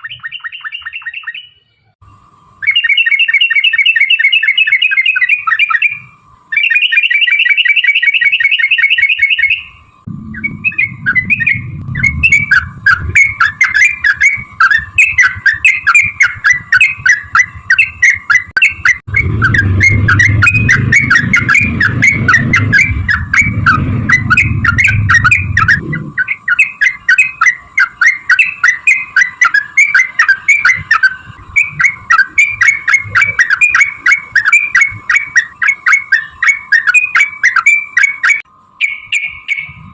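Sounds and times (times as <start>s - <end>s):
bird singing trills and chatter: 0.0s - 39.9s
low rumble: 10.0s - 16.8s, 19.0s - 26.5s.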